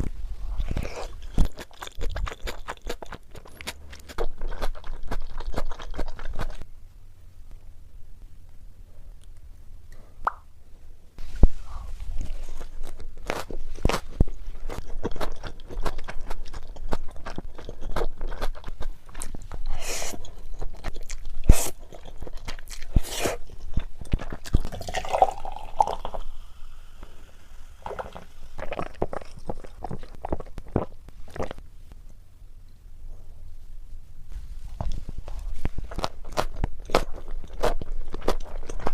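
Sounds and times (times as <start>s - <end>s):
person crunching while chewing: 0.6s - 6.6s, 12.4s - 26.2s, 27.8s - 31.6s, 35.9s - 38.9s.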